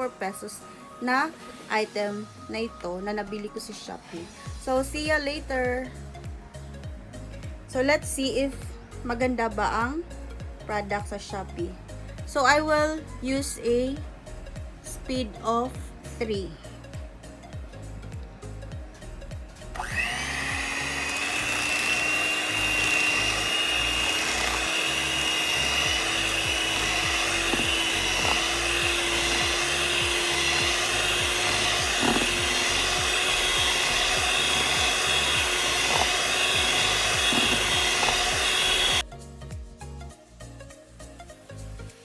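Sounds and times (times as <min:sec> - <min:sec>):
electric hand mixer whining: 0:19.2 - 0:39.0.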